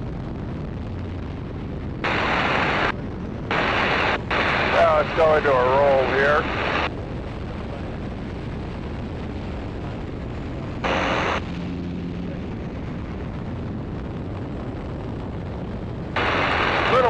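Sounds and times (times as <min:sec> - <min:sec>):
aircraft engine: 0:00.0 - 0:17.0
wind noise: 0:00.0 - 0:17.0.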